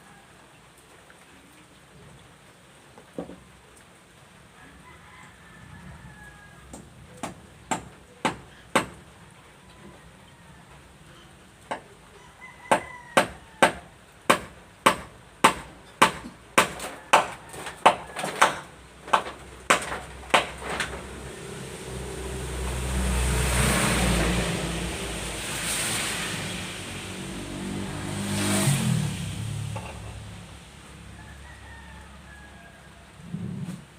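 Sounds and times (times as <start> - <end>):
hammer driving nails into wood: 12.8 - 21.0.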